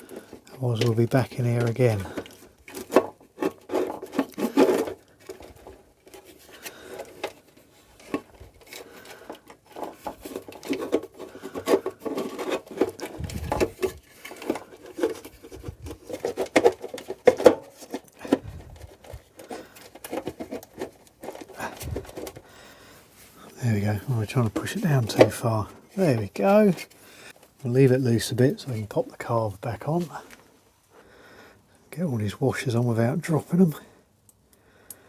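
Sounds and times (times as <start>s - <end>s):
light knocks of parts: 0.0s - 22.6s
parts rubbing and scraping: 0.0s - 30.4s.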